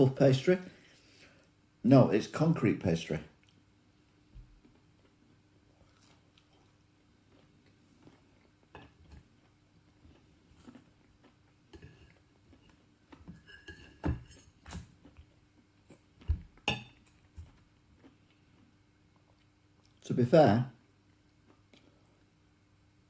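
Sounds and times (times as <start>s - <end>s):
cutlery scraping on plate: 11.7s - 14.9s, 16.7s - 17.1s.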